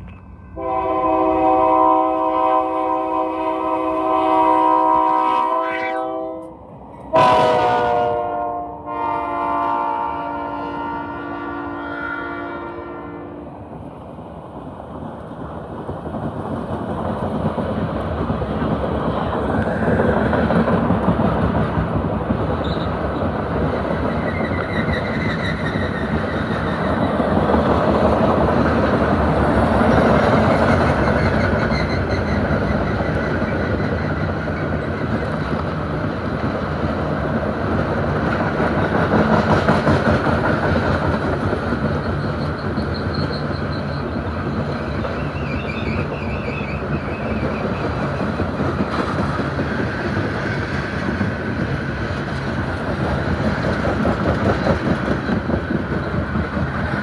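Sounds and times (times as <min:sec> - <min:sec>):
freight train wheels rumbling: 0:00.0 - 0:57.0
locomotive horn: 0:00.6 - 0:13.4.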